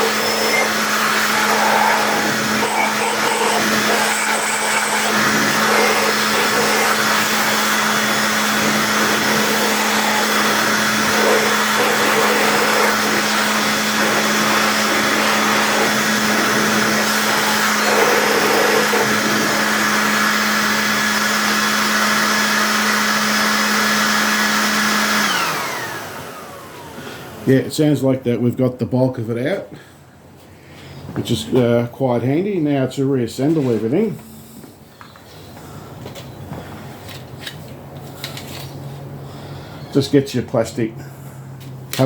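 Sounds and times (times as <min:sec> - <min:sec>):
leaf blower running: 0:00.0 - 0:27.4.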